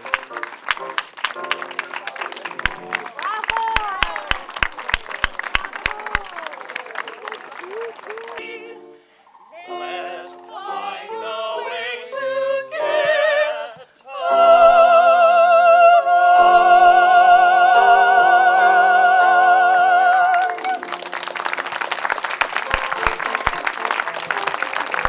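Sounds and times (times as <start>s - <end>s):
audience applause: 0.0s - 9.0s, 20.1s - 25.0s
person singing with instruments: 7.6s - 21.0s.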